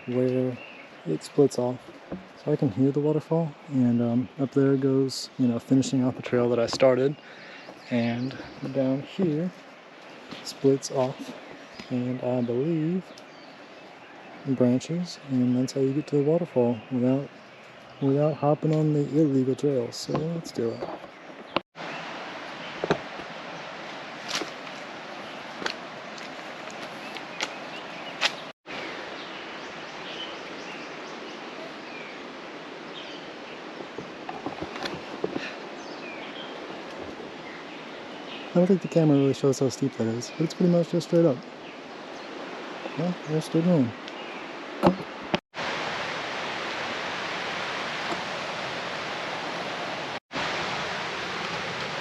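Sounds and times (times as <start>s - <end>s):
birds chirping: 0.0s - 45.4s
steady outdoor hiss: 0.0s - 52.0s
footsteps on trail: 9.5s - 11.9s, 23.9s - 28.5s, 33.8s - 37.2s
waterfall rushing: 42.3s - 52.0s.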